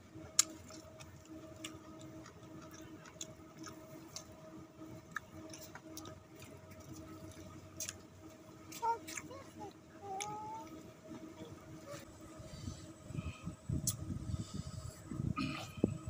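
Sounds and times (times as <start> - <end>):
faint steady hum: 0.0 - 16.0
person chewing: 0.3 - 4.4, 5.1 - 8.1, 8.7 - 9.4.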